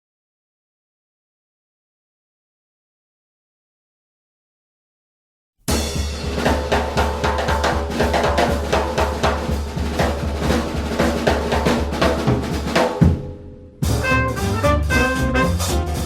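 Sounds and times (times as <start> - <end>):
drum roll: 5.7 - 16.0
swing jazz drum kit break: 5.7 - 16.0.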